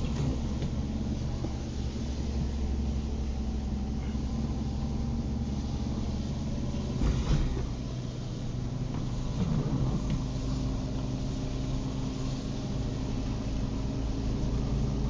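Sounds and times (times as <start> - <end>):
car engine hum: 0.0 - 15.0
road noise: 0.0 - 15.0
thump: 7.0 - 7.7.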